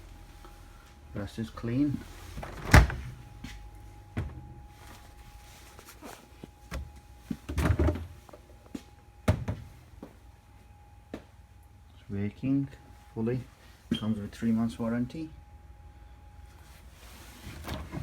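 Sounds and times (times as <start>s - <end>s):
faint steady hum: 0.0s - 18.0s
fridge door thunks and knocks: 2.4s - 3.2s, 7.5s - 8.1s, 9.2s - 9.7s.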